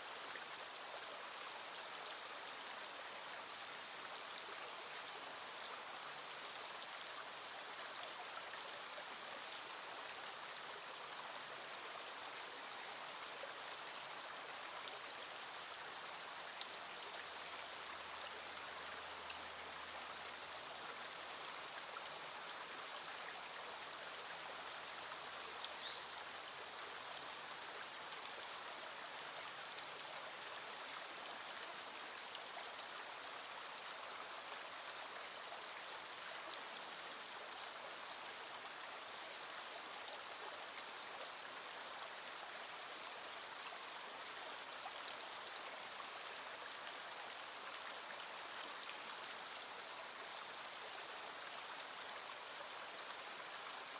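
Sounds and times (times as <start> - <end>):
small stream flowing: 0.0 - 53.9.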